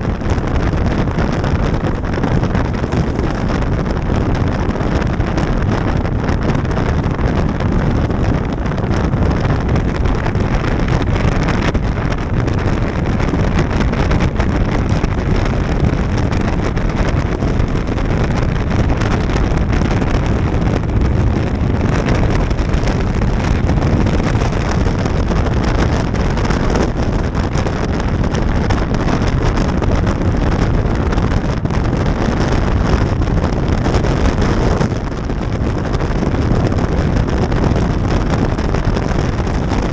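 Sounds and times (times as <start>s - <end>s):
road noise: 0.0s - 39.9s
wind rushing over microphone: 0.0s - 39.9s.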